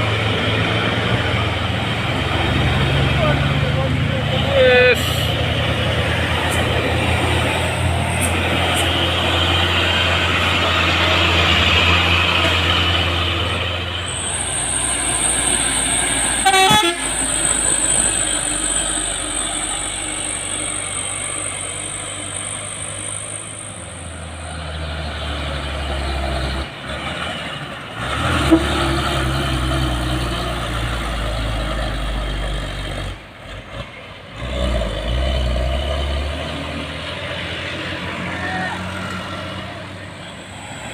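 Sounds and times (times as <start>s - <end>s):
truck diesel engines under load: 0.0s - 40.9s
truck horn toot: 16.1s - 17.4s, 28.4s - 29.0s.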